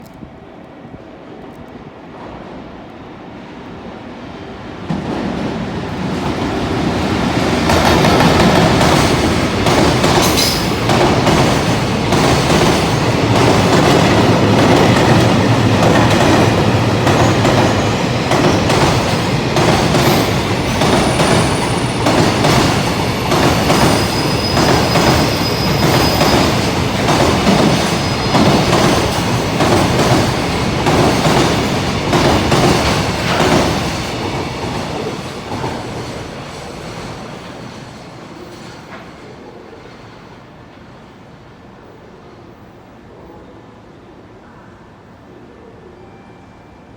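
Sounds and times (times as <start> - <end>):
train wheels clattering over rail joints: 7.6 - 37.6
high wheel squeals: 23.2 - 26.8.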